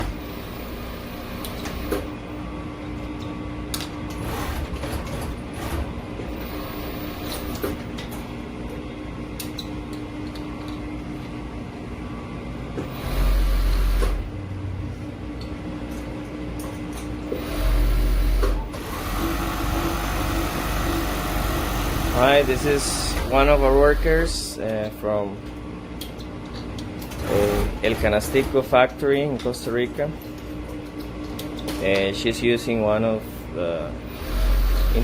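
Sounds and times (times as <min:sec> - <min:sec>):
sewing machine hum: 0:04.1 - 0:07.8, 0:12.9 - 0:14.2, 0:17.3 - 0:23.6, 0:27.1 - 0:28.6, 0:34.1 - 0:35.0
sewing machine running loudly: 0:04.1 - 0:07.8, 0:12.9 - 0:14.2, 0:17.3 - 0:24.1, 0:27.1 - 0:28.7, 0:34.1 - 0:35.0.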